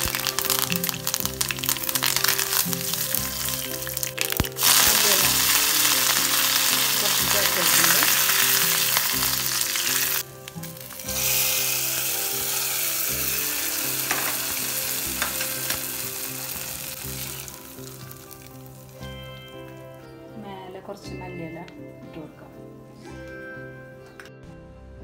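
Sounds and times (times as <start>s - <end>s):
hot oil sizzling and spluttering: 0.0s - 19.6s.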